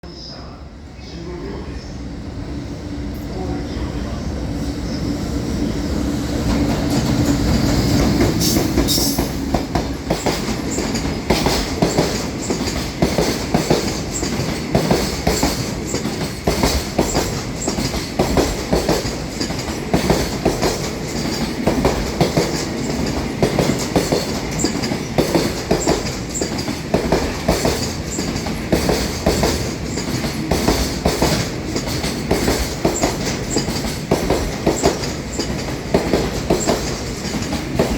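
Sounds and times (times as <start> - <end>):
train wheels clacking over rail joints: 6.4 - 37.9.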